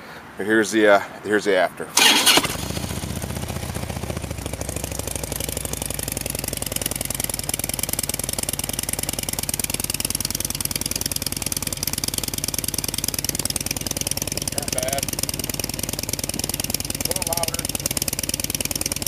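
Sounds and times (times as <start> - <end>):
motorcycle engine idling: 2.0 - 19.0.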